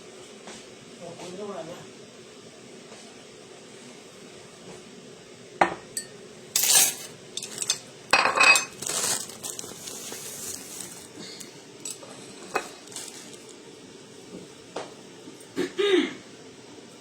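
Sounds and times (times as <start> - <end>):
dishes and cutlery clinking: 5.6 - 9.2, 11.8 - 13.2
dishes clattering and scraping: 5.6 - 11.0, 11.8 - 13.4.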